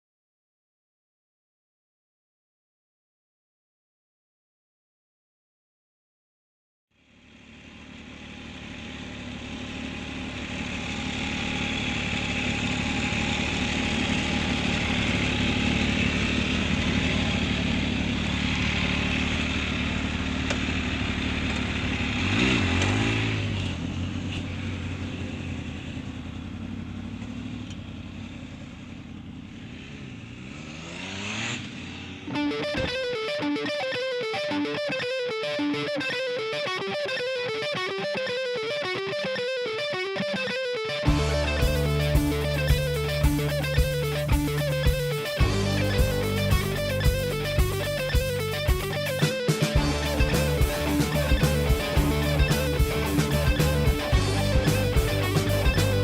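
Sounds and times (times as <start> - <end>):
motorcycle engine running: 7.0 - 33.0, 41.0 - 56.0
electric guitar music: 32.3 - 56.0.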